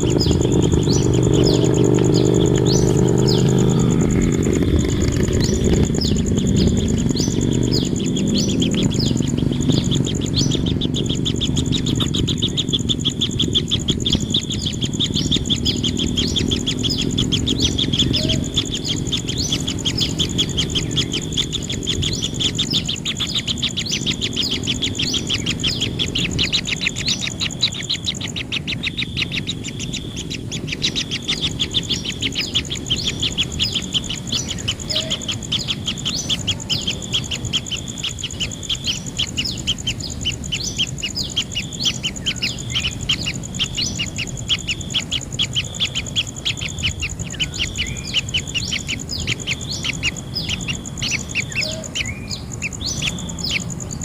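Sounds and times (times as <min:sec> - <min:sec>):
high-pitched hum: 0:00.0 - 0:41.4
nestlings chirping: 0:00.0 - 0:54.0.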